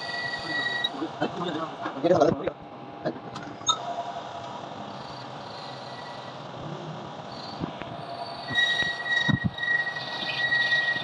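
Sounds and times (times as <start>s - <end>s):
metal-on-metal squeal: 0.0s - 1.0s, 5.0s - 6.4s, 7.3s - 11.0s
workshop machine noise: 0.0s - 11.0s.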